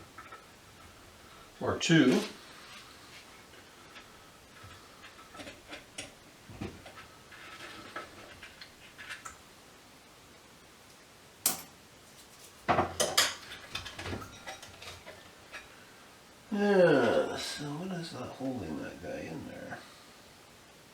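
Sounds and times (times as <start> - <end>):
metal tools clinking and knocking: 11.5 - 11.8.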